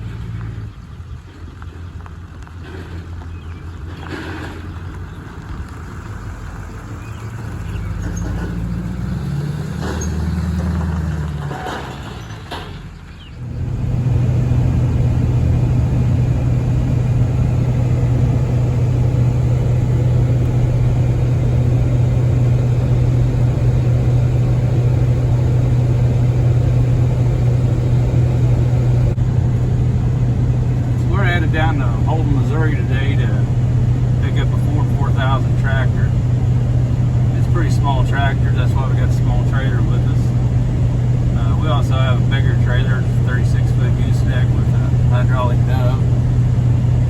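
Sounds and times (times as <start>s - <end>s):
road noise: 0.0s - 47.0s
truck engine: 0.0s - 47.0s.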